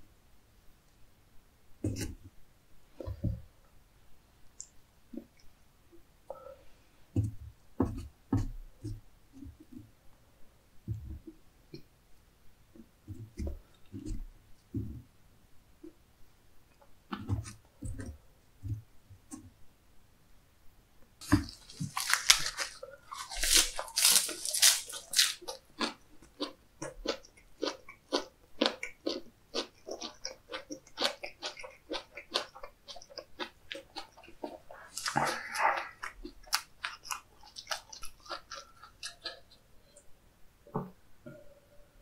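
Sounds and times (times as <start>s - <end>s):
crunching lettuce leaves: 21.2s - 39.4s
wet chewing: 21.2s - 40.0s.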